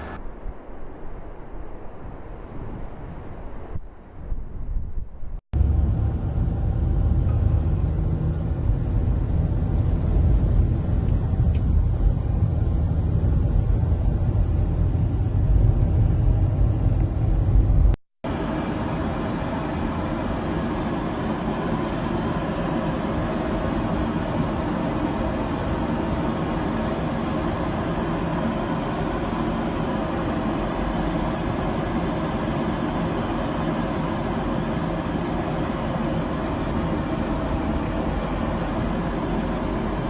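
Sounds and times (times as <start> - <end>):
loud low rumbling: 0.0 - 19.3.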